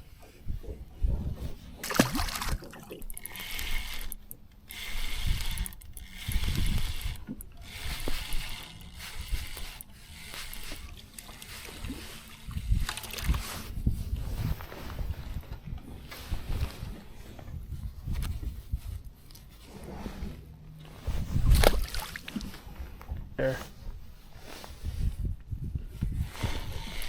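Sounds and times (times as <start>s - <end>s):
water sounds: 1.8s - 13.5s
fishing reel cranking: 1.9s - 13.7s, 26.2s - 27.0s.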